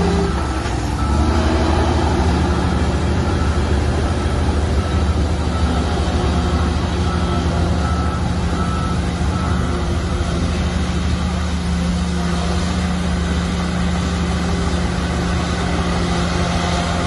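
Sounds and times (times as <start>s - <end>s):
diesel machinery running: 0.0s - 17.0s
reversing alarm beeps: 0.1s - 10.6s.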